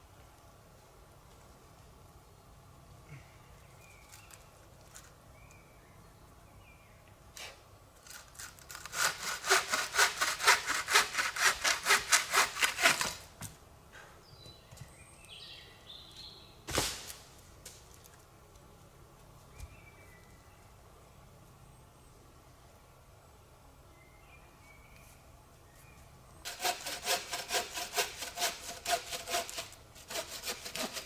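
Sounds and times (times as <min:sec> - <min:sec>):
hand saw cutting wood: 0:07.4 - 0:13.2, 0:26.5 - 0:31.0.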